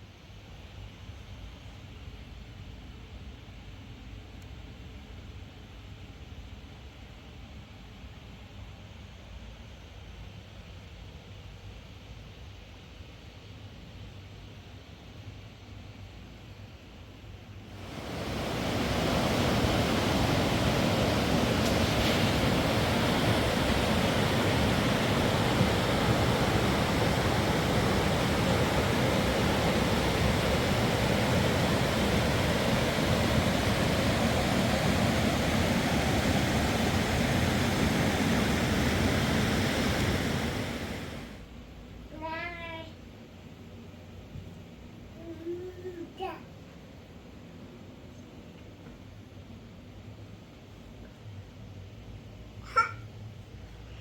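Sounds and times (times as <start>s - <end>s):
steady rushing noise: 17.7s - 41.4s.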